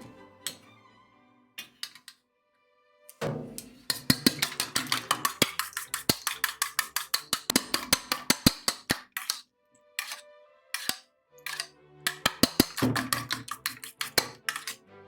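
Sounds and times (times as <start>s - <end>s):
background music: 0.0s - 15.0s
utensil beating mixture in bowl: 3.3s - 9.4s, 10.0s - 10.2s, 10.8s - 14.8s.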